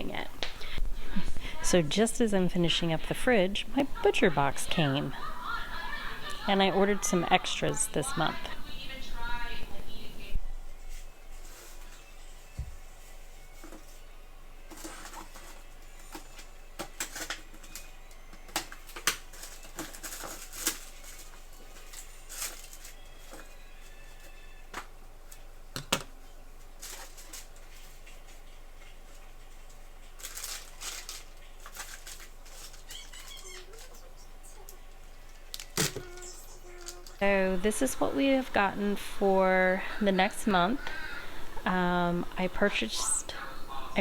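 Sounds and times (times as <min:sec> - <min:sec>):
packages clicking and rustling: 0:14.6 - 0:44.0.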